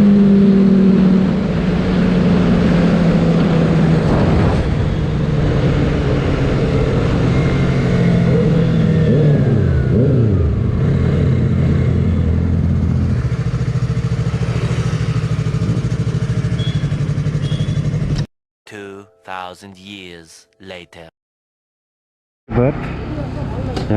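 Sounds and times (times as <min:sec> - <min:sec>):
motorcycle engine running: 0:12.4 - 0:18.2.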